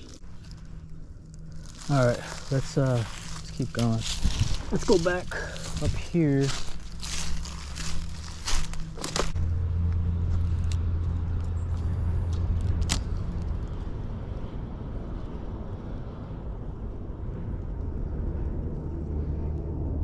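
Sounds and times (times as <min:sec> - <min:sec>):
motor vehicle passing: 0:00.0 - 0:20.0
footsteps: 0:01.5 - 0:09.4.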